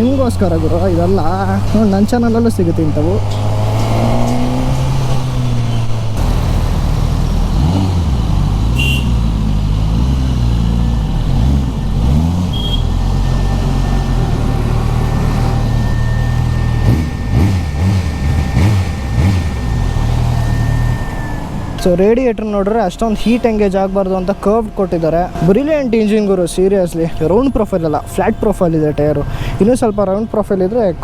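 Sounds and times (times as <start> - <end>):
motorcycle engine revving: 0.0 - 21.8.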